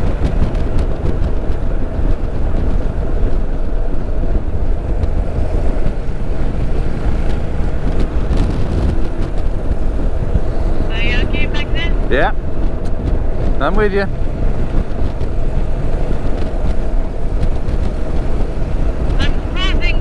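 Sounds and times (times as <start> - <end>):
motorcycle engine rumble: 0.0 - 20.0
road noise: 0.0 - 20.0
wind noise on microphone: 0.0 - 20.0.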